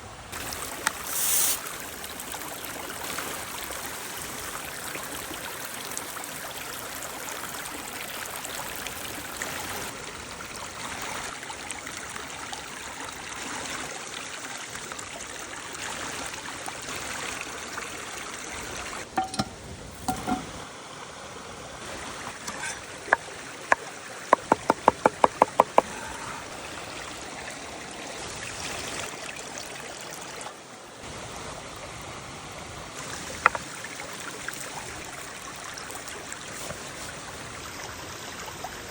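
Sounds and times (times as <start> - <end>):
stream rushing: 0.2 - 10.0, 19.0 - 28.4
sharp knocks: 24.4 - 25.9.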